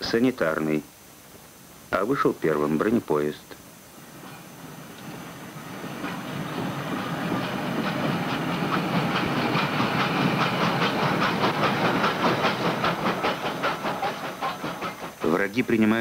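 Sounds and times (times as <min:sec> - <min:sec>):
train wheels clacking on rails: 0:04.4 - 0:16.0.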